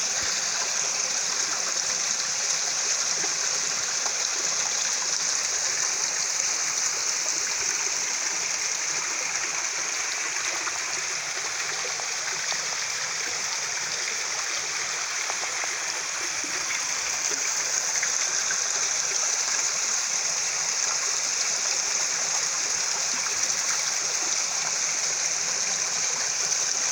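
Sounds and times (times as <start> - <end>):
waterfall and stream rushing: 0.0 - 26.9.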